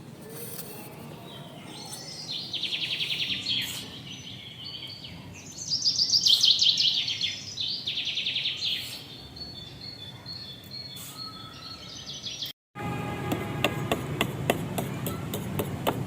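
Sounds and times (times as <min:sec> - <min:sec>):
songbirds chirping and trilling: 0:00.0 - 0:12.6.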